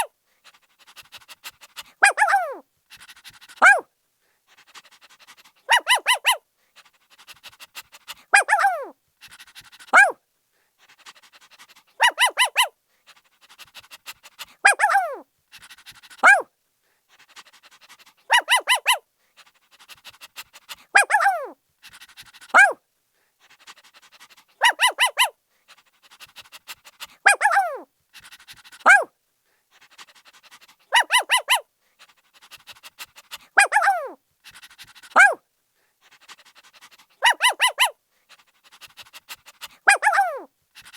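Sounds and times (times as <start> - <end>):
puppy yipping: 2.0 - 2.6, 3.6 - 3.8, 5.7 - 6.4, 8.3 - 8.9, 9.9 - 10.2, 12.0 - 12.7, 14.6 - 15.2, 16.2 - 16.5, 18.3 - 19.0, 21.0 - 21.6, 22.5 - 22.8, 24.6 - 25.3, 27.2 - 27.9, 28.8 - 29.1, 30.9 - 31.6, 33.3 - 34.2, 35.1 - 35.4, 37.2 - 38.0, 39.8 - 40.9.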